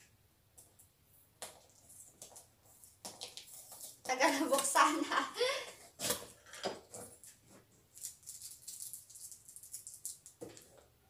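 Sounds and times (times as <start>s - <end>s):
packaging rustling and scraping: 1.6s - 4.0s, 5.8s - 10.7s.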